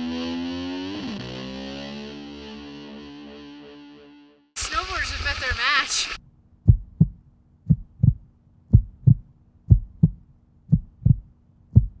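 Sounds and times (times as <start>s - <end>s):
heartbeat thumps: 6.6s - 12.0s.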